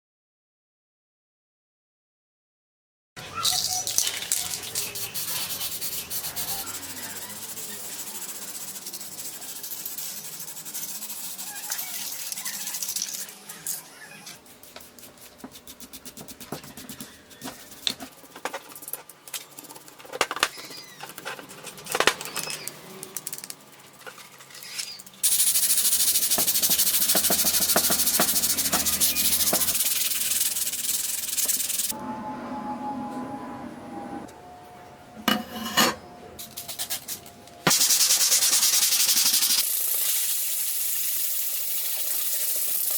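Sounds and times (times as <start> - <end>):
metal parts clicking and scraping: 3.4 - 5.5
loud steady hiss: 25.2 - 31.9.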